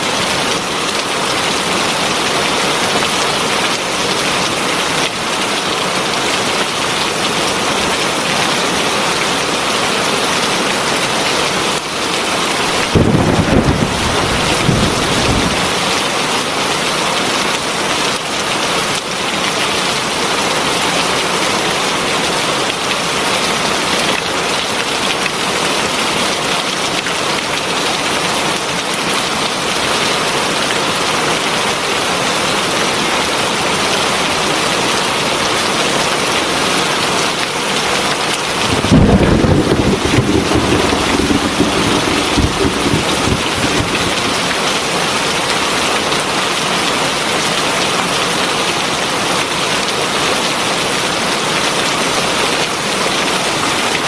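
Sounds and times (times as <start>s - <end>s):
heavy rain falling: 0.0s - 54.0s
low rumble of thunder: 12.6s - 16.0s, 38.5s - 44.9s.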